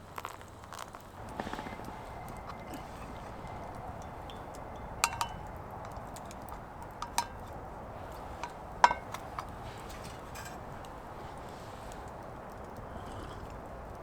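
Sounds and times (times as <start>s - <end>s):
metal utensil clinking on cookware: 1.2s - 11.5s.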